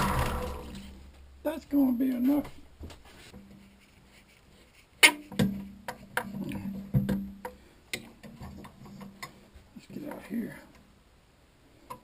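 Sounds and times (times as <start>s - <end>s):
tools knocking and clanking: 5.0s - 9.4s.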